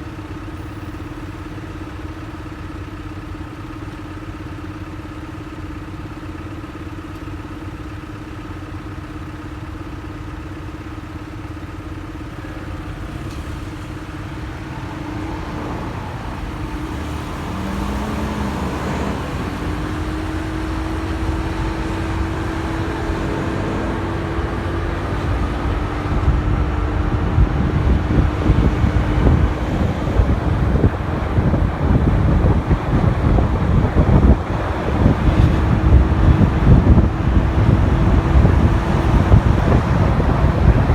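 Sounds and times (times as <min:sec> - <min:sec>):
motorcycle engine running: 0:00.0 - 0:15.2, 0:15.9 - 0:40.9
wind buffeting microphone: 0:13.5 - 0:40.9.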